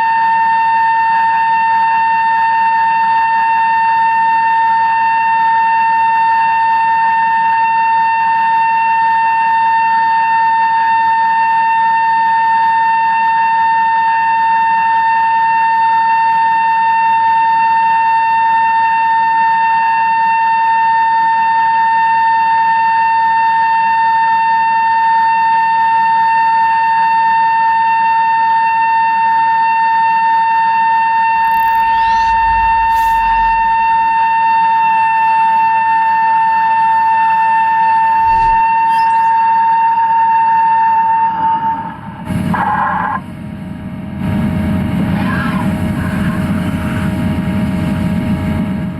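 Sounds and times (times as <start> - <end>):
drill whining through steel: 31.4 - 34.4, 38.2 - 39.4.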